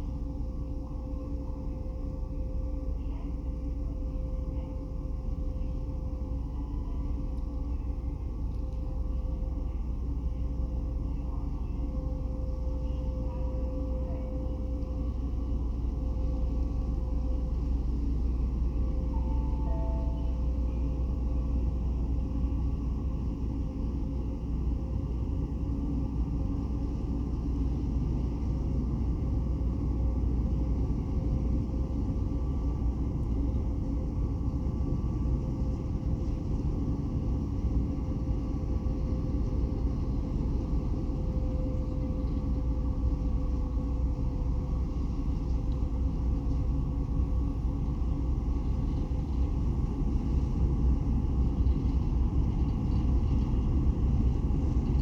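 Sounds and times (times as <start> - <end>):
faint hum: 0.0 - 55.0
ferry engines rumbling: 2.9 - 22.4.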